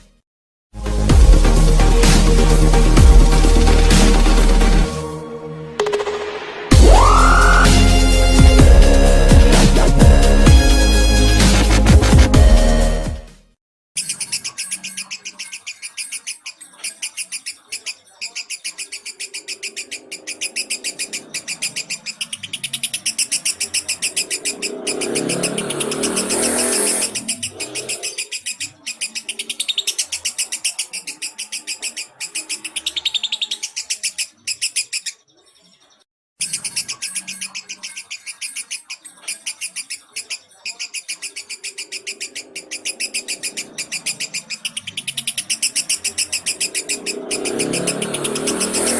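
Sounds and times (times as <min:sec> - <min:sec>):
lovebird chirping: 0:14.0 - 0:48.9.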